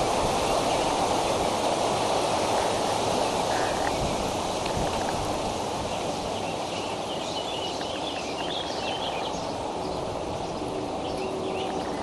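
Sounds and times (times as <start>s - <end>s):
rushing outdoor background noise: 0.0s - 12.0s
bird chirping and warbling: 5.9s - 12.0s.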